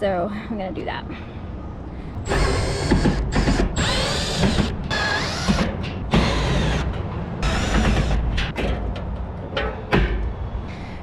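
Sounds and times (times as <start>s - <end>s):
metal scraping and squeaking: 2.2s - 10.5s.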